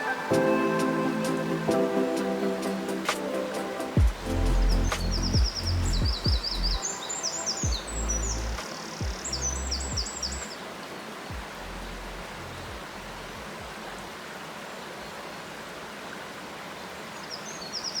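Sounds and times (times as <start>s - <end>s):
water flowing: 0.0s - 18.0s
low thumps: 4.0s - 6.8s.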